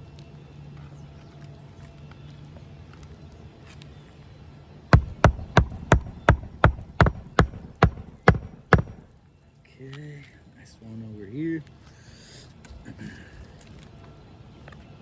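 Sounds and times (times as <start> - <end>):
hammer driving nails into shingles: 5.0 - 9.1.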